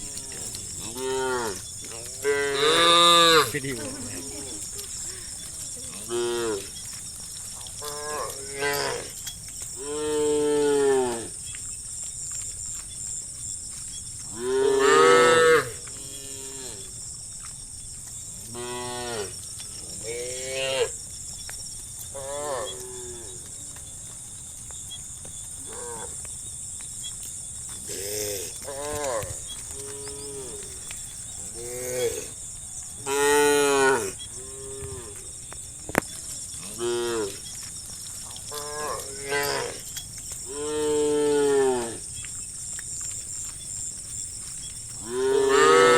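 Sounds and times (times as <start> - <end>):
drawn-out animal calls: 0.0 - 17.0, 27.6 - 45.9.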